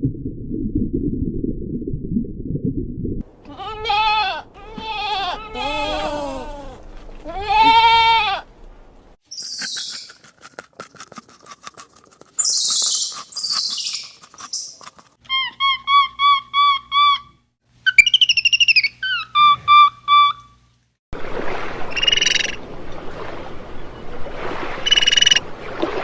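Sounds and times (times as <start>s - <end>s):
animal bleating: 3.4s - 8.5s.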